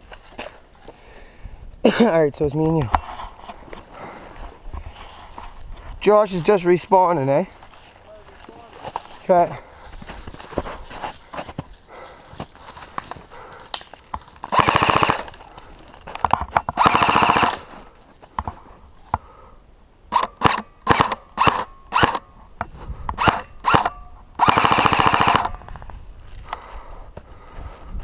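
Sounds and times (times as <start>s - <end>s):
airsoft rifle firing bursts: 14.5s - 15.4s, 16.8s - 17.7s, 20.1s - 22.2s, 23.2s - 25.6s.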